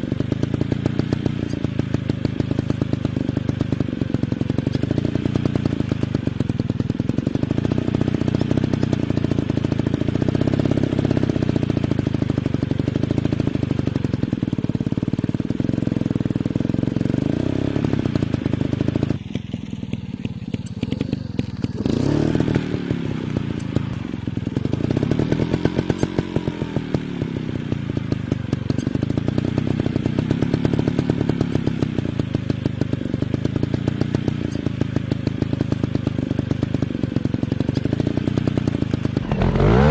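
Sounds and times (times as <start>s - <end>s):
dirt bike engine revving: 16.7s - 19.6s, 20.4s - 32.0s, 37.6s - 39.9s.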